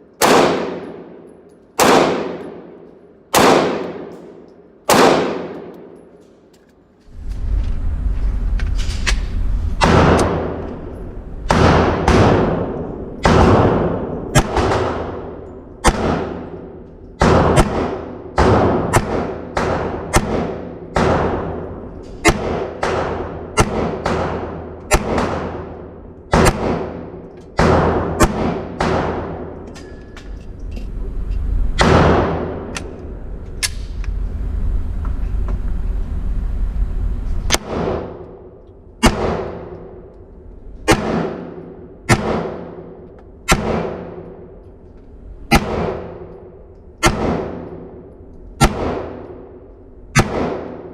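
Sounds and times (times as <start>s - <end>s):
handgun shots echoing: 0.1s - 6.6s, 11.5s - 30.0s, 40.9s - 44.6s, 50.2s - 50.9s.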